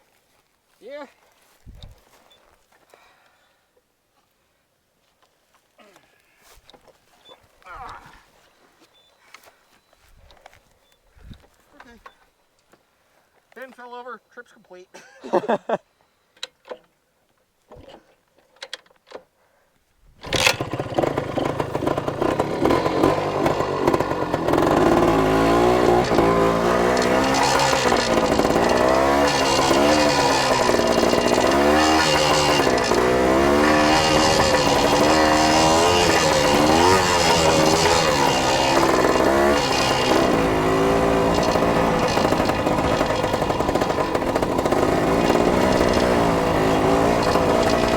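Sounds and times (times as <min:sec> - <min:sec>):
dirt bike engine revving: 0:20.2 - 0:47.9.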